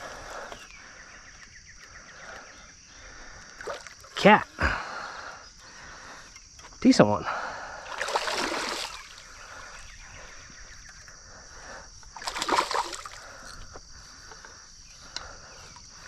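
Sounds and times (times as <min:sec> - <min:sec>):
fish thrashing water splashing: 0:07.9 - 0:09.3, 0:12.1 - 0:13.4.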